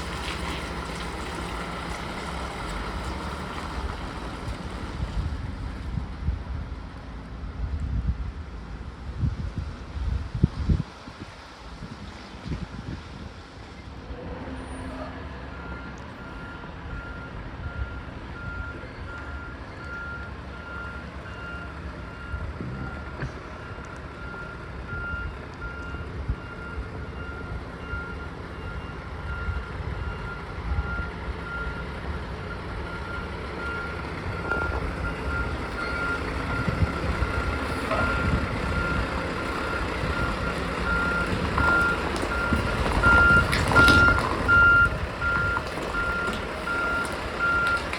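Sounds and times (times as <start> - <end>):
truck engine running: 0.0 - 10.8, 15.4 - 47.9
truck reversing alarm beeping: 14.6 - 47.9.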